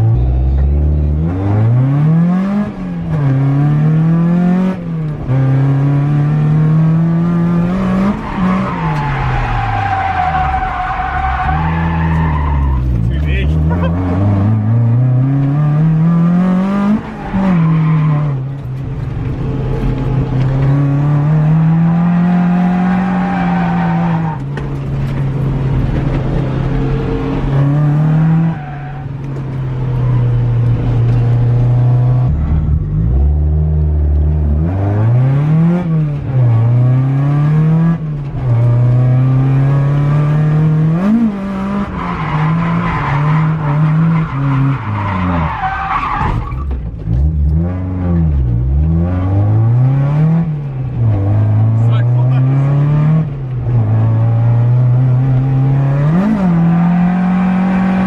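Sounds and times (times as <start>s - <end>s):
tyre squeal: 8.1s - 14.0s
car engine revving hard: 47.1s - 58.0s.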